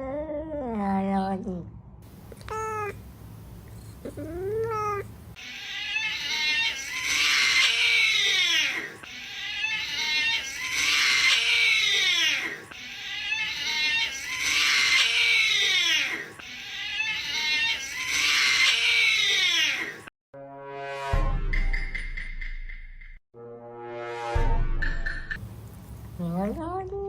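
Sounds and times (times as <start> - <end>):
cat meowing: 2.1 - 5.2
harsh cat yowl: 4.0 - 5.1.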